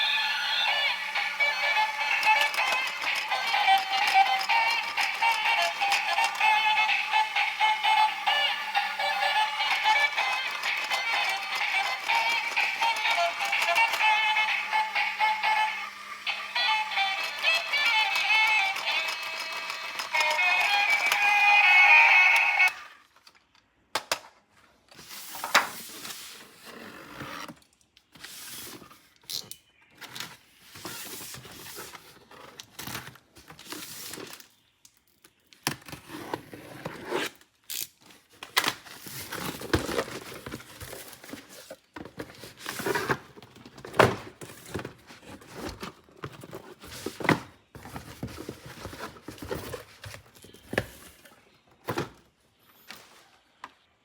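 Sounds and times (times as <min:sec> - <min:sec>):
plastic toy parts clicking: 0:17.2 - 0:21.4.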